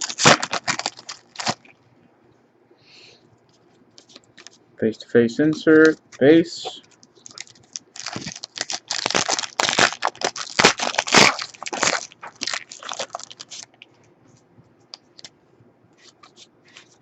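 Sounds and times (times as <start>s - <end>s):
foil wrapper tearing and crinkling: 0.0s - 1.7s, 7.2s - 13.8s.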